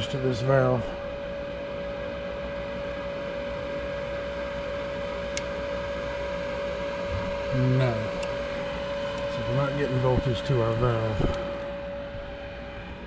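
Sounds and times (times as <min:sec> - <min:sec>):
furnace motor whirring hum: 0:00.0 - 0:13.0
light click: 0:05.3 - 0:05.5.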